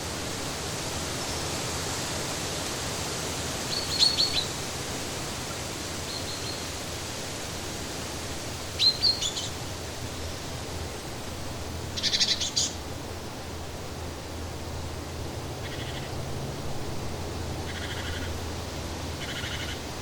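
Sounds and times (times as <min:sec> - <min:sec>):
songbird chirping: 0:12.0 - 0:12.8.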